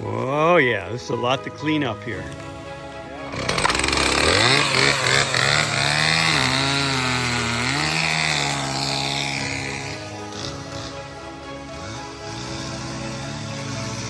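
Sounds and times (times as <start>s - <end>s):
chainsaw cutting wood: 3.2s - 14.0s.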